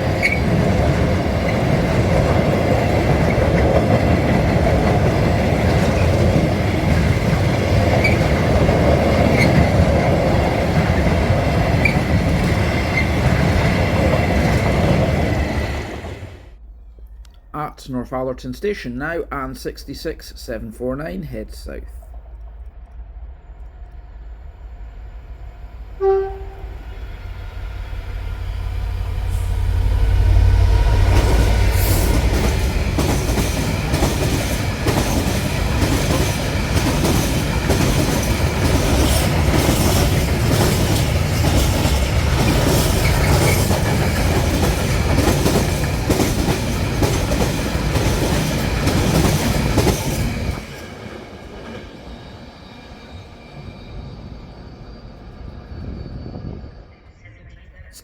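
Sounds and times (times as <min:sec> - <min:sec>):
wheels clattering over rail joints: 0:00.0 - 0:15.6, 0:32.0 - 0:51.9
train horn toot: 0:26.0 - 0:27.1.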